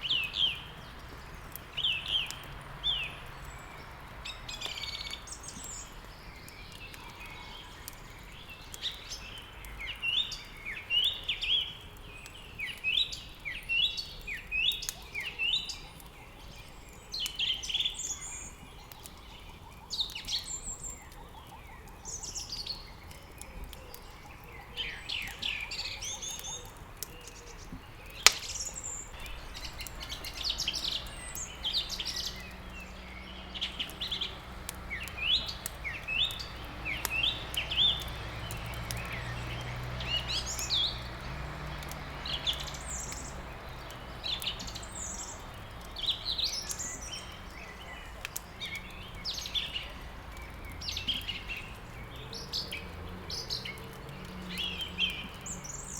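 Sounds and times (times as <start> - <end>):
songbirds chirping and trilling: 0.0 - 55.9
wood fire crackling: 0.0 - 55.9
small clicks: 22.6 - 32.9, 33.6 - 55.7
loud pop: 28.3 - 28.7.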